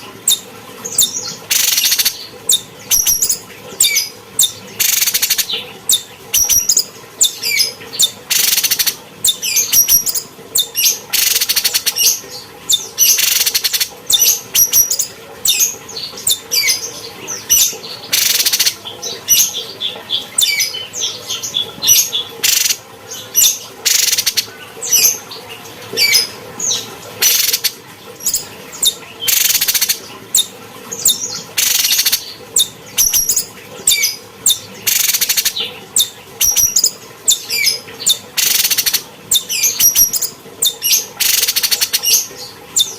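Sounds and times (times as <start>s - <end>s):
bird singing chirps and whistles: 0.3s - 16.8s, 28.3s - 42.9s.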